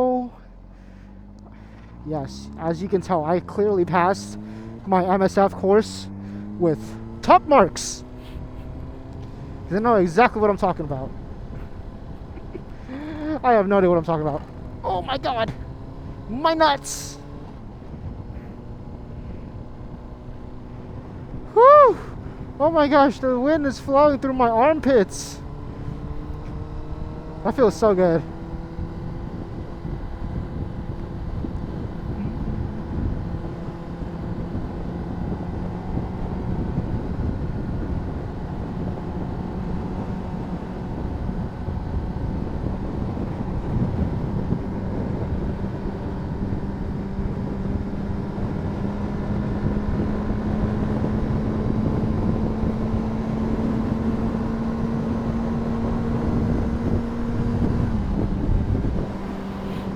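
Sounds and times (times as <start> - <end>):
motorcycle engine running: 0.0 - 59.9
wind on microphone: 49.7 - 59.9.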